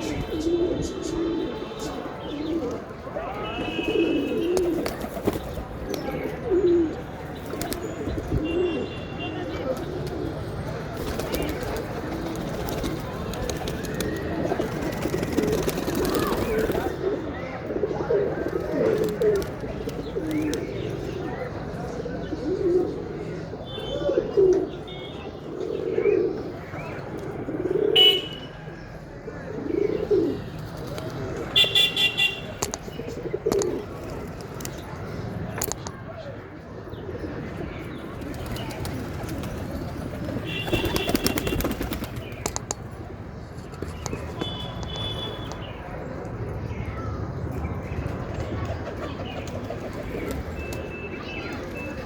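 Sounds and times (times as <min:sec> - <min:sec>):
pigeons cooing: 0:00.0 - 0:02.9, 0:03.7 - 0:08.9, 0:09.6 - 0:23.3, 0:25.4 - 0:28.2, 0:29.3 - 0:31.0, 0:33.0 - 0:34.2, 0:36.8 - 0:42.7.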